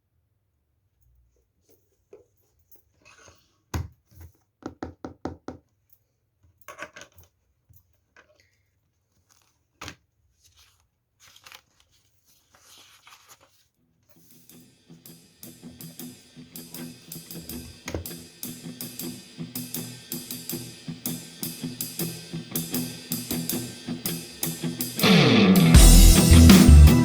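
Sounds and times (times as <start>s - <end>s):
paper rustling and scraping: 1.8s - 3.7s, 8.2s - 14.6s.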